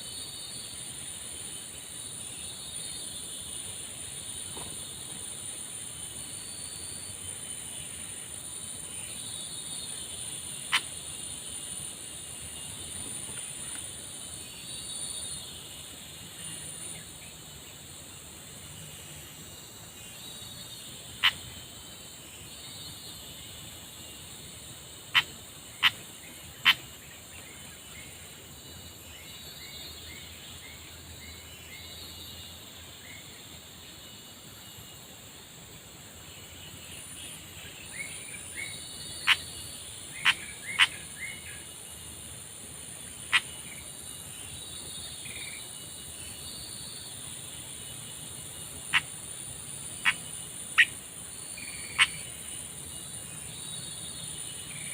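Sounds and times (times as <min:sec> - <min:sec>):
small birds chirping: 0:00.0 - 0:18.0, 0:36.2 - 0:54.9.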